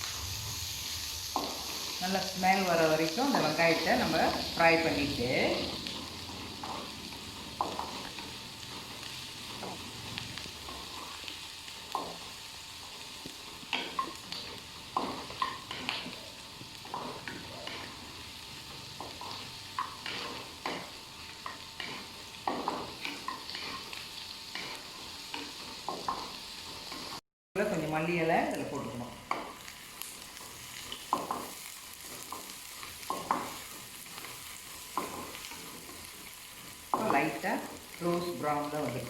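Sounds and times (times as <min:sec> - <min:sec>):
onions sizzling in hot oil: 0:00.0 - 0:39.0
spatula scraping a pan: 0:13.6 - 0:27.2.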